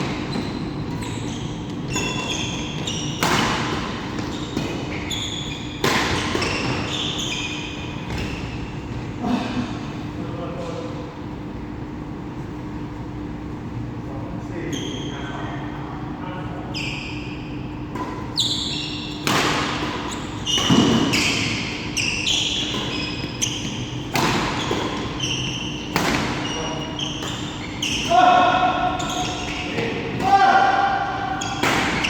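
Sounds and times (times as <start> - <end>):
court shoes squeaking: 0.0 - 9.2, 14.6 - 32.0
rackets hitting shuttlecock: 5.8 - 7.0, 19.1 - 32.0.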